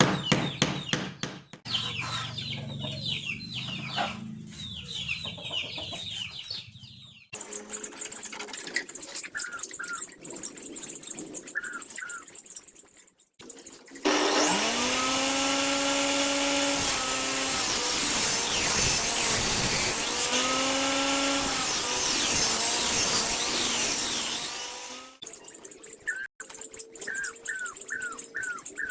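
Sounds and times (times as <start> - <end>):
saw blade cutting wood: 14.0 - 25.2
table saw motor humming: 14.0 - 25.2.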